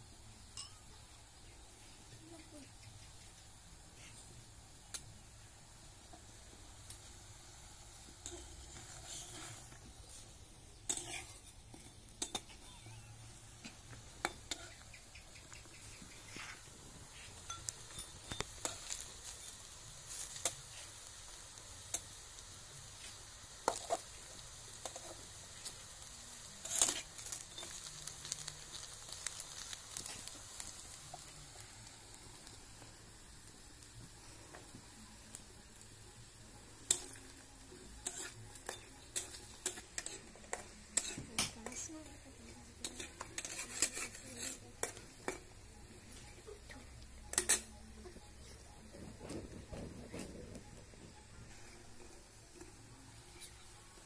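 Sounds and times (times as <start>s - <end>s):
battered food frying in oil: 0.0s - 54.0s.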